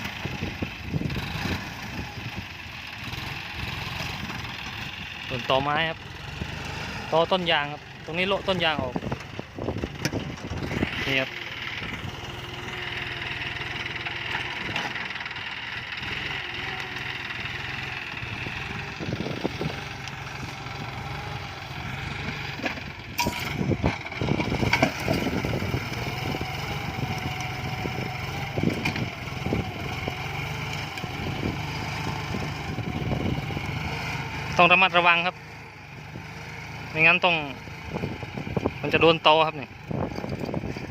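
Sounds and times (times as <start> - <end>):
tractor diesel engine running: 0.0 - 40.9
knocks and clatter: 22.6 - 25.5.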